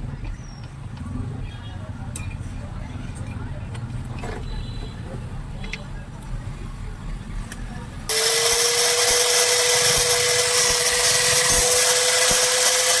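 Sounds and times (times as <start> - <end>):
angle grinder whining: 8.1 - 13.0.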